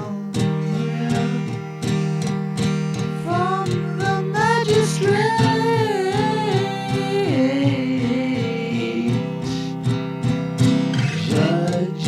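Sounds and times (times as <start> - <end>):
person singing: 0.0 - 2.2, 3.1 - 9.8, 11.0 - 12.0
strummed guitar: 0.0 - 12.0.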